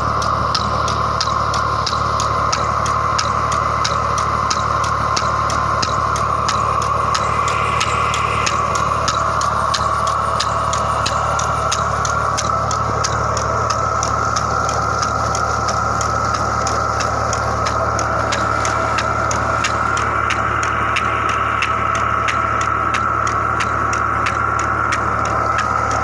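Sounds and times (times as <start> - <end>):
pump high whine: 0.0 - 26.0
regular mechanical ticking: 0.0 - 26.0
tractor engine running: 0.0 - 26.0.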